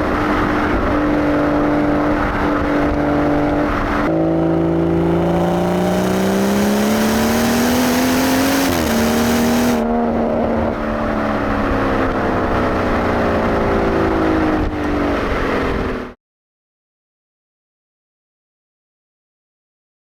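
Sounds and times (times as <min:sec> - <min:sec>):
car exhaust revving: 0:00.0 - 0:09.9.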